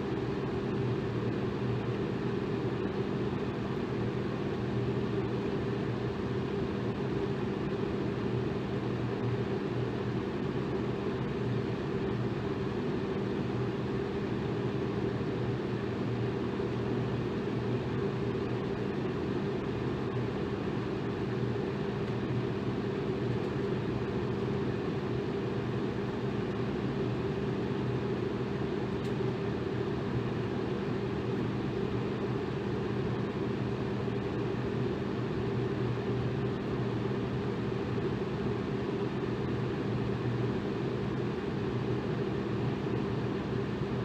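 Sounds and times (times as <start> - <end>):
electric fan running: 0.0 - 44.0.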